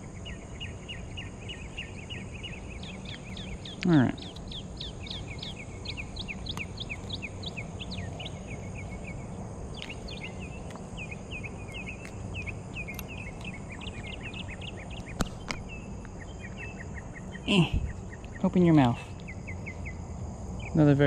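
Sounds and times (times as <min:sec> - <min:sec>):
bird chirping: 0:00.0 - 0:21.0
faint high insect drone: 0:00.0 - 0:21.0
steady low rumble: 0:00.0 - 0:21.0
sharp clicks: 0:15.0 - 0:15.6.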